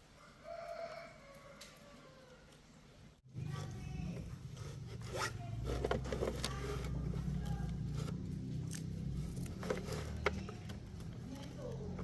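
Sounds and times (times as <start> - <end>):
clicks and scrapes: 4.5 - 11.4.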